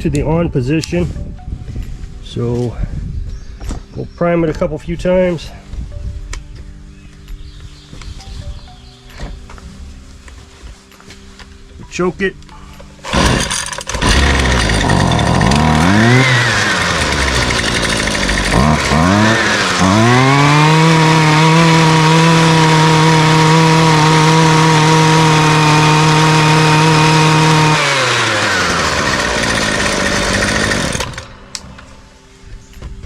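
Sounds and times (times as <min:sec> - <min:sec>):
string trimmer engine revving: 0:13.0 - 0:31.4.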